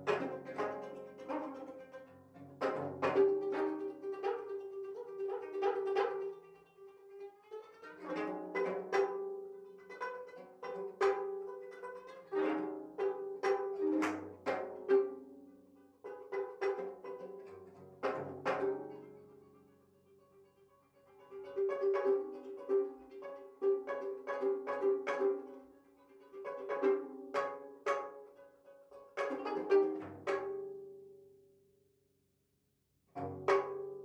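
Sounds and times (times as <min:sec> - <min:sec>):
plucked zither notes: 0:07.8 - 0:15.4, 0:16.1 - 0:19.4, 0:26.3 - 0:31.0, 0:33.2 - 0:34.0.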